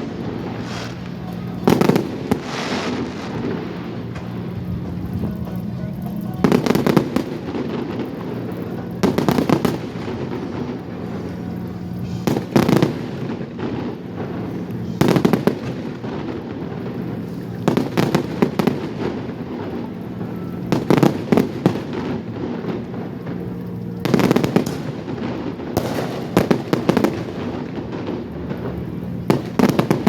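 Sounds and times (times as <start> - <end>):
steady low hum: 0.0 - 20.8
fireworks bangs and crackles: 0.0 - 30.0.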